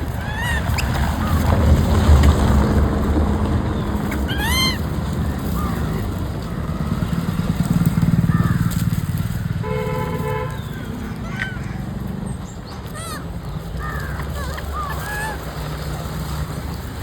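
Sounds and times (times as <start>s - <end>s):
vehicle engine rumbling: 0.0s - 17.0s
vehicle horn: 9.5s - 11.0s.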